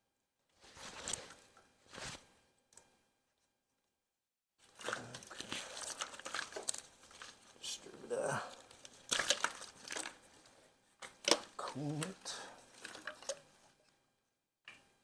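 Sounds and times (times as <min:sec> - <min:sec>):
hands clattering parts and tools: 0:04.7 - 0:07.8, 0:08.5 - 0:13.6.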